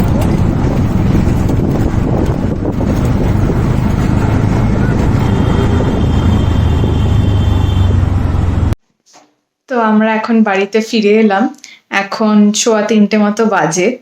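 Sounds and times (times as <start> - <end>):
vehicle road and engine noise: 0.0 - 8.8.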